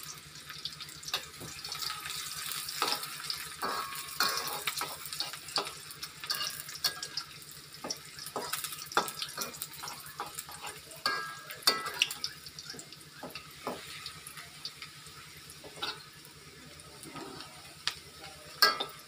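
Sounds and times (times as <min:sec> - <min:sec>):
onions sizzling in oil: 0:00.0 - 0:19.0
metal spatula scraping wok: 0:01.8 - 0:07.2, 0:17.0 - 0:17.7.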